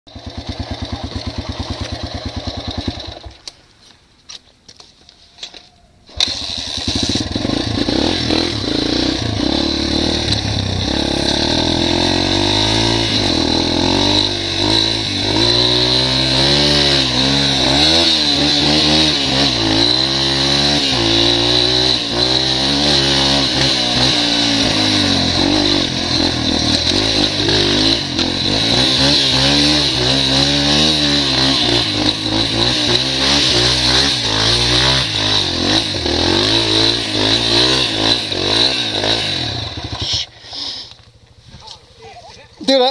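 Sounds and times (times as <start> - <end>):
dirt bike engine revving: 0.1 - 3.4, 6.1 - 41.0.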